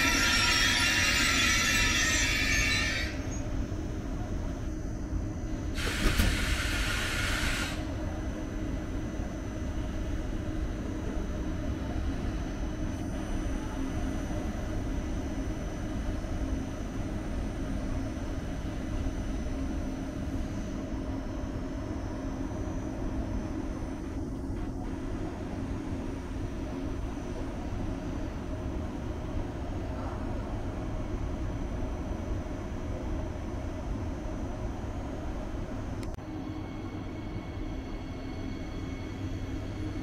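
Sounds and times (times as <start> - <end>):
train rumble and hum: 0.0 - 40.0
loud hiss: 5.7 - 7.9.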